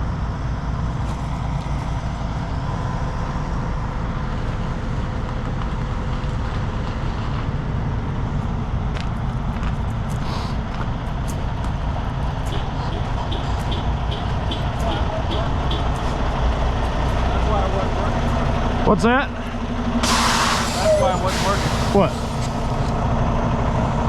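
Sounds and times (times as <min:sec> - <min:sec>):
diesel truck engine idling: 0:09.4 - 0:24.0.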